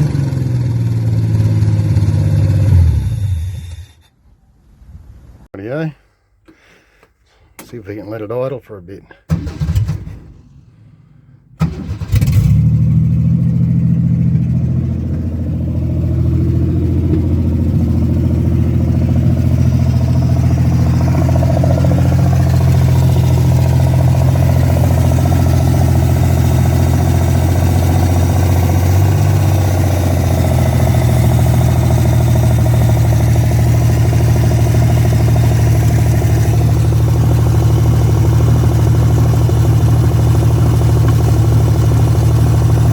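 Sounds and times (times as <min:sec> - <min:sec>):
car engine starting and idling: 0:09.2 - 0:42.9.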